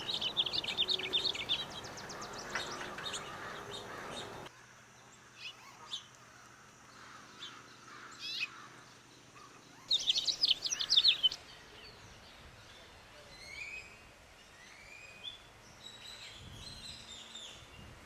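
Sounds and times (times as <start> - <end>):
songbird singing fast high notes: 0.0 - 4.4, 9.9 - 11.4
faint bird chirps: 0.0 - 4.5, 9.4 - 11.4.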